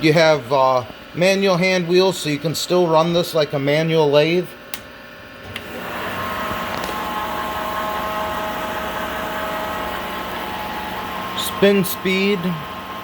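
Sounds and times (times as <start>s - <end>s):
motor hum: 0.0s - 13.0s
lathe spindle whine: 5.4s - 13.0s.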